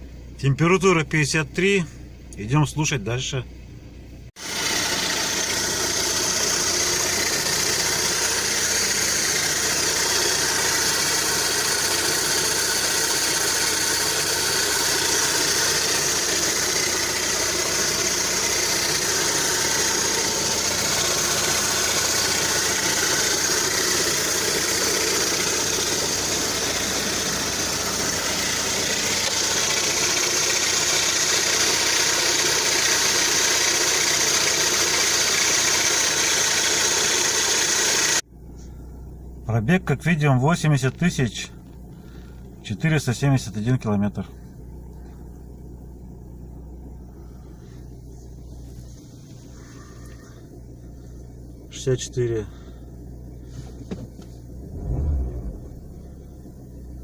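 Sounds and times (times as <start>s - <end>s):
car engine idling: 0.0s - 57.0s
light engine ticking: 4.5s - 38.7s, 47.0s - 54.4s.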